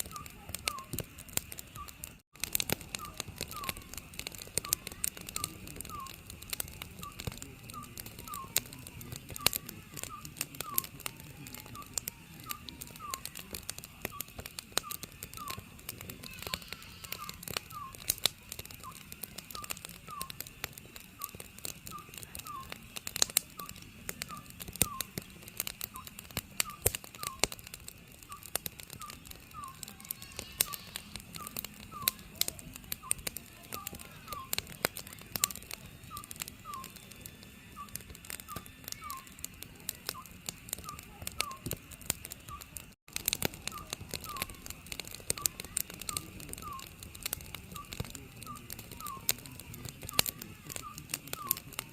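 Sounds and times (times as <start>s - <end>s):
owl calling: 0.0s - 1.0s, 3.0s - 6.2s, 7.0s - 20.4s, 21.2s - 22.8s, 23.5s - 25.3s, 25.9s - 27.6s, 28.3s - 37.1s, 37.7s - 39.5s, 40.1s - 41.7s, 43.6s - 51.8s
wood fire crackling and popping: 0.0s - 51.9s.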